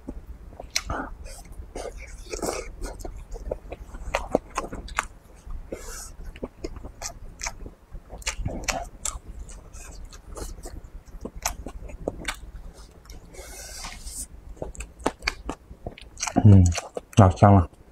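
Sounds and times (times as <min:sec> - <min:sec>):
person chewing food: 0:00.0 - 0:17.8
mouth smacks: 0:00.6 - 0:03.1.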